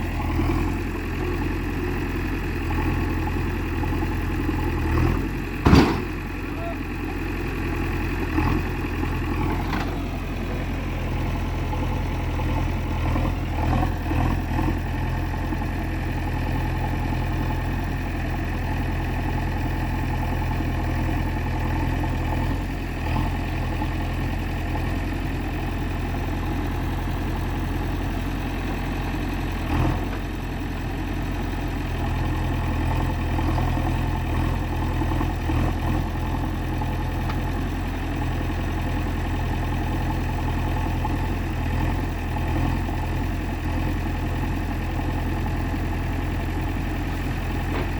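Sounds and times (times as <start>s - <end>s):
diesel engine running: 0.0s - 47.9s
engine clunks: 3.8s - 10.9s, 35.8s - 39.3s, 46.6s - 47.9s.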